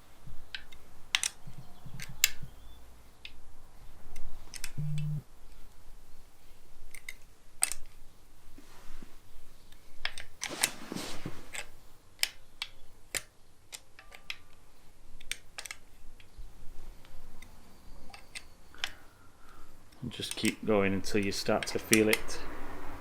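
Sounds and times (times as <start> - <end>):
rustling scrape: 8.6 - 9.3, 10.4 - 11.8
hand tool clicking on bolts: 20.2 - 22.2.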